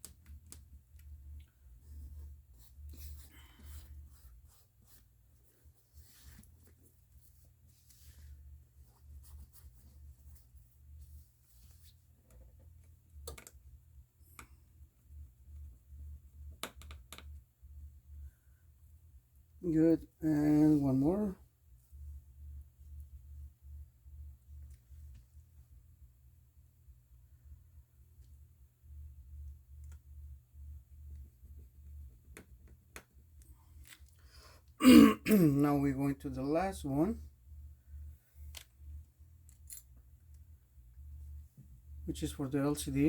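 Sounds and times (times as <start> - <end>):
steady low hum: 0.0 - 16.6, 17.2 - 43.0.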